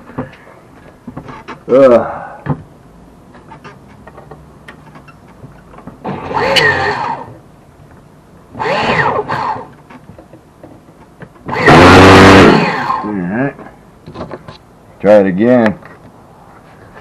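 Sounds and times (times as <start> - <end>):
model engine start attempts: 6.0 - 7.3, 8.6 - 9.7, 11.5 - 13.1.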